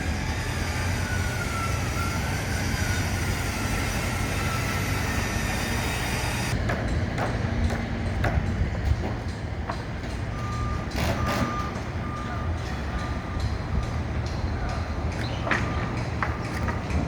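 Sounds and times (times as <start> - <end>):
reversing alarm beeping: 0.0 - 6.6, 10.3 - 16.0
machinery and traffic rumble: 0.0 - 17.0.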